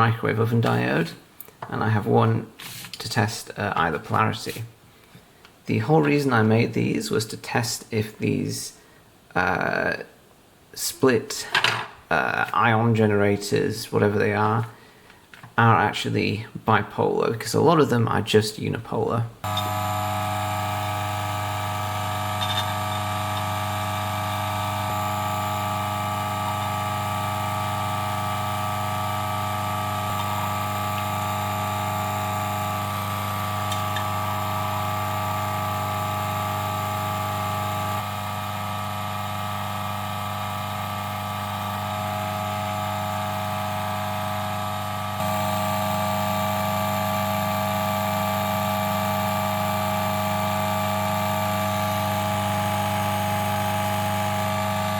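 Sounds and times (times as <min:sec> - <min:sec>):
coffee grinder motor humming: 0:19.4 - 0:54.9.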